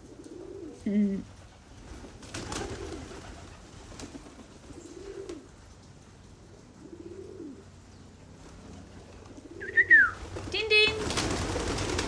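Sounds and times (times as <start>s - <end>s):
pigeon cooing: 0.0s - 1.5s, 2.4s - 3.5s, 4.1s - 5.6s, 6.4s - 7.8s, 8.6s - 12.0s.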